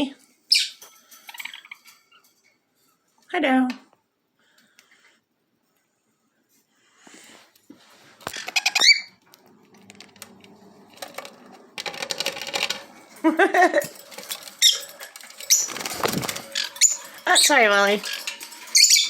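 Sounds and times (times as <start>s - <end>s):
parrots chirping and squawking: 0.4s - 2.5s, 8.2s - 9.3s, 11.9s - 19.0s
rapid clicking and scratching: 13.8s - 19.0s.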